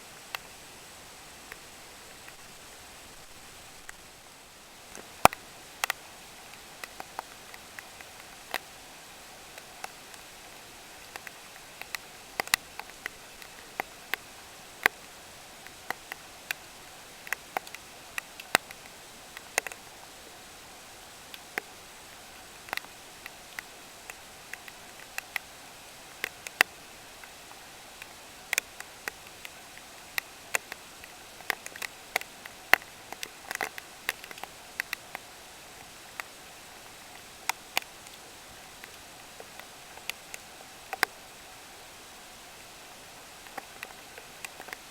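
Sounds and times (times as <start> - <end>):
steady rain hiss: 0.0 - 44.9
raindrops tapping on hard surface: 9.4 - 20.1, 21.3 - 41.2.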